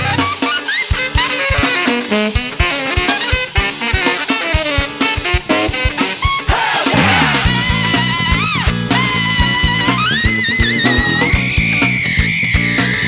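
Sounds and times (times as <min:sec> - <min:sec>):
band playing jazz-funk: 0:00.0 - 0:13.0
lead instrument bending notes: 0:06.9 - 0:13.0.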